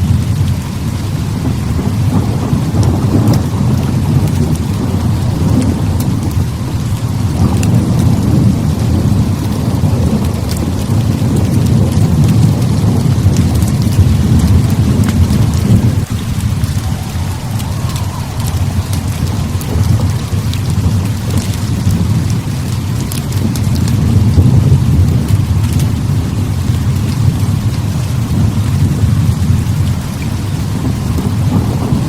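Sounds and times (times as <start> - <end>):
heavy rain pouring: 0.0 - 32.0
rolling thunder rumble: 0.0 - 32.0
faint sharp crackles: 11.7 - 24.0.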